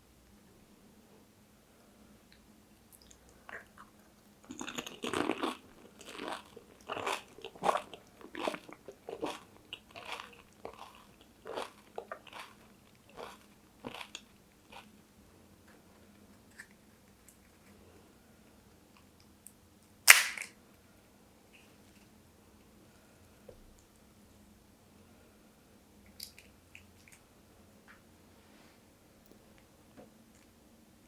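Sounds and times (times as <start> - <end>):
crunching and chewing: 3.0 - 15.0.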